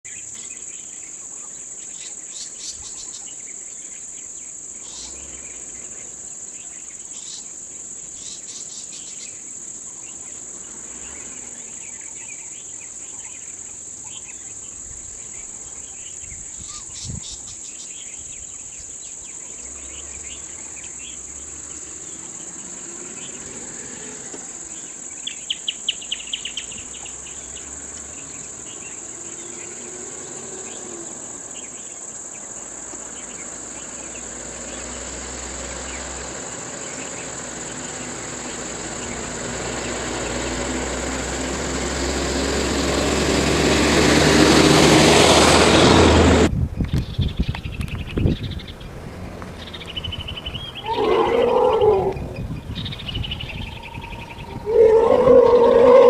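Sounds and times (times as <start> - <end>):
faint insect chirps: 0.1 - 42.7, 46.6 - 56.0
sharp clicking chirps: 46.8 - 48.8, 49.4 - 56.0
high-pitched insect drone: 50.6 - 56.0.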